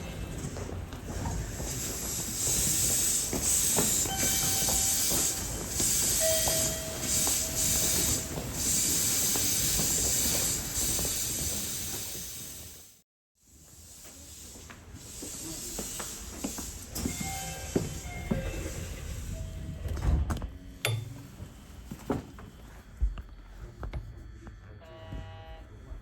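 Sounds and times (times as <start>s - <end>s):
train low rumble: 0.0s - 12.9s, 13.5s - 26.0s
air hiss: 1.3s - 19.4s.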